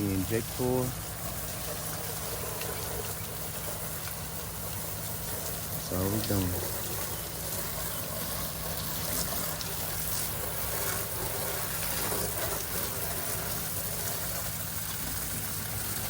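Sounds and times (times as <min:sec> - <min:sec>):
pressure washer engine humming: 0:00.0 - 0:16.0
water spraying hiss: 0:00.0 - 0:16.0.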